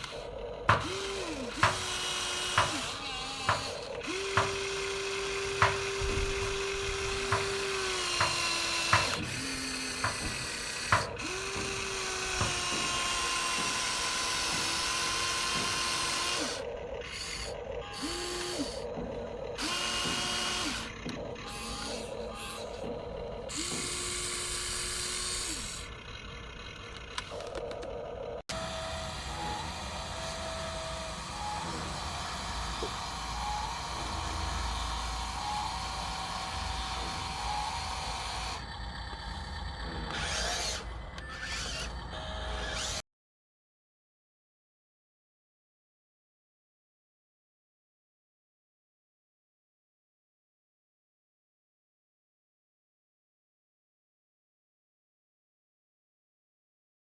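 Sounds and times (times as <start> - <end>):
toy electric motors whining: 0.0 - 43.0.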